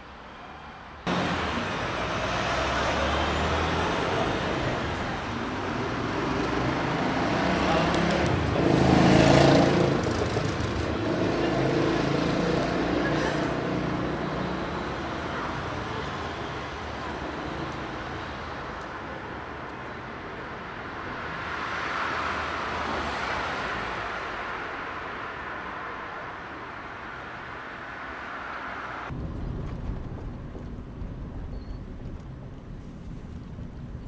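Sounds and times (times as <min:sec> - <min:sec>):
city street traffic: 0:00.0 - 0:34.0
vehicle passing close: 0:01.1 - 0:18.2.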